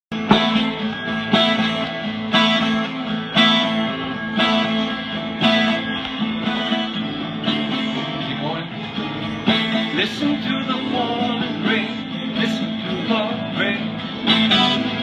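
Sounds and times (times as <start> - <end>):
twelve-string guitar strummed: 0.1 - 15.0.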